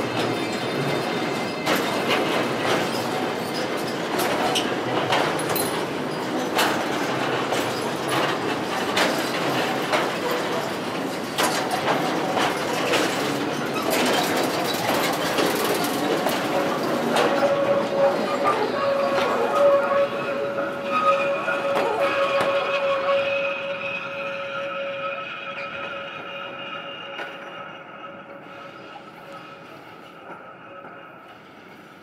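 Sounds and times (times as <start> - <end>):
wheels clacking over rails: 0.0 - 23.3
train rolling on track: 0.0 - 32.0.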